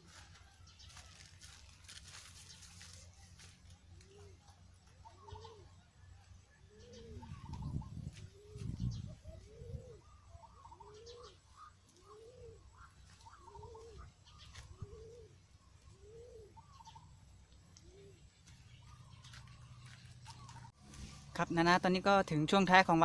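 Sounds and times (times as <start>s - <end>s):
dove cooing: 2.8s - 21.3s.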